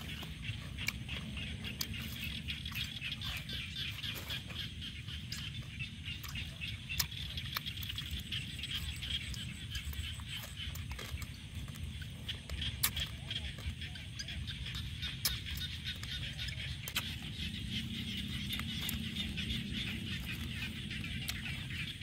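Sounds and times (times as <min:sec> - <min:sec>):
chorus of calling animals: 0:00.0 - 0:22.0
person chewing and crunching: 0:00.0 - 0:22.0
mouth clicks: 0:06.1 - 0:22.0.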